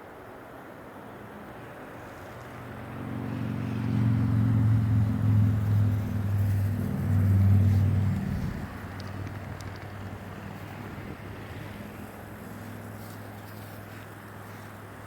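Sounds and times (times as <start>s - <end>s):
vehicle engine passing by: 2.2s - 14.0s.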